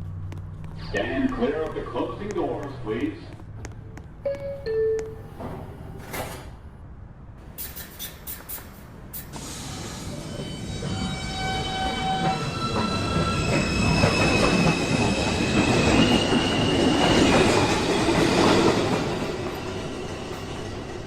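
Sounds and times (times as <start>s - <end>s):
train propulsion whine: 7.7s - 21.0s
train wheels rumbling and clattering: 9.1s - 21.0s.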